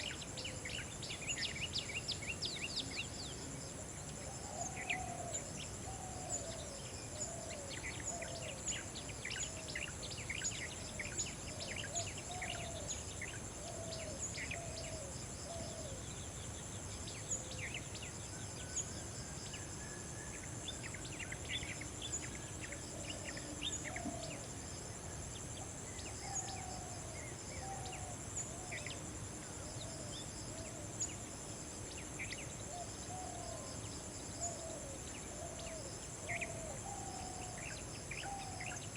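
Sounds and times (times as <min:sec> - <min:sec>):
insect trill: 0:00.0 - 0:38.9.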